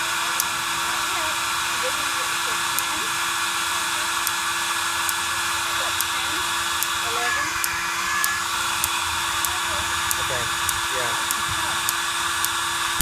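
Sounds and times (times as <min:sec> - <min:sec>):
igniter spark clicks: 0:04.1 - 0:13.0.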